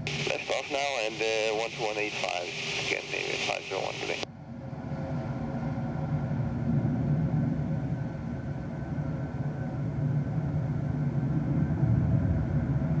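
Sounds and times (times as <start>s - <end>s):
jet engines running: 0.0s - 4.2s.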